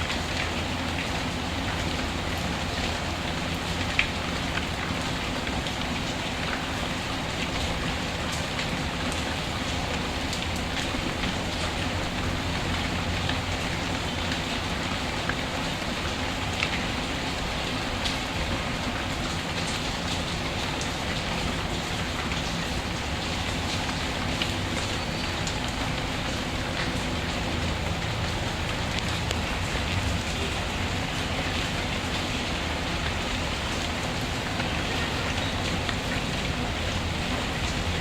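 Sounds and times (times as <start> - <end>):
rain falling: 0.0 - 38.0.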